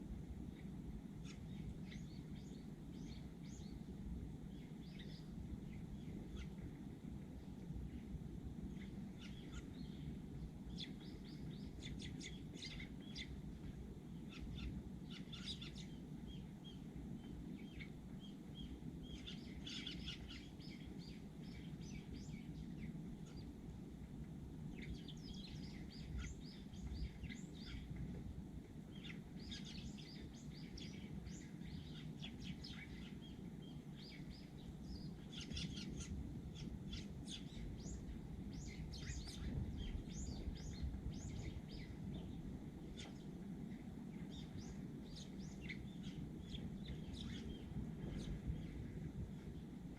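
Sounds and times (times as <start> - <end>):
low background rumble: 0.0 - 49.9
sparrows chirping: 0.5 - 6.7, 7.9 - 23.6, 24.6 - 28.2, 28.9 - 43.4, 44.1 - 49.8.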